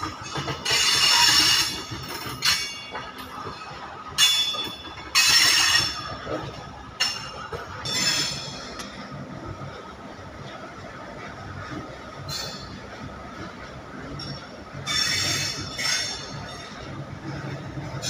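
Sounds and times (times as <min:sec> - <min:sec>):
freight train rumbling: 0:00.0 - 0:18.0
metallic wheel screeching: 0:00.3 - 0:02.9, 0:04.2 - 0:06.1, 0:07.8 - 0:08.7, 0:14.8 - 0:16.8.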